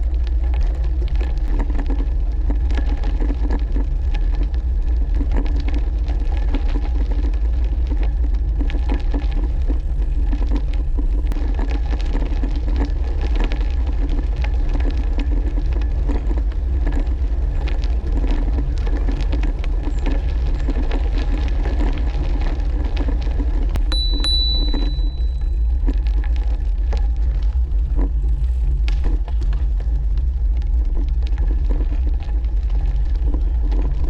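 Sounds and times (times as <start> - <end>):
steady low rumble: 0.0 - 34.0
tyres crackling over ground: 0.0 - 34.0
high steady tone: 23.9 - 25.6.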